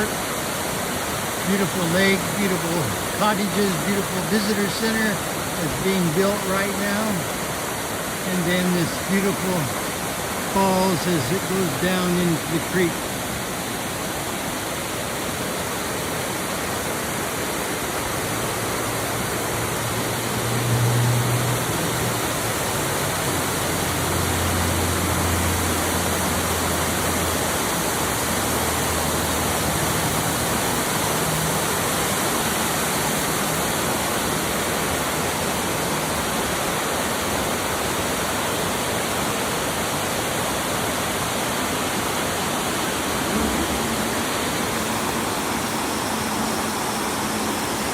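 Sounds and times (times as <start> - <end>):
waterfall rushing: 0.0 - 47.9
low hum: 42.6 - 47.9.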